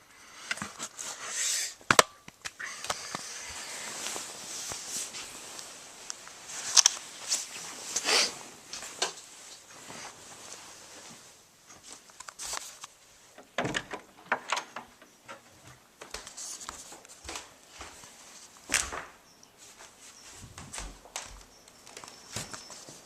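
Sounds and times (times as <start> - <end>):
rustling: 0.3 - 23.0.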